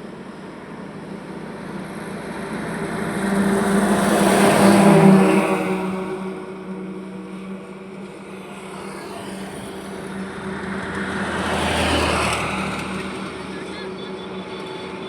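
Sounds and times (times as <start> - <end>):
low engine hum: 0.0 - 15.0
vehicles passing on highway: 0.0 - 15.0.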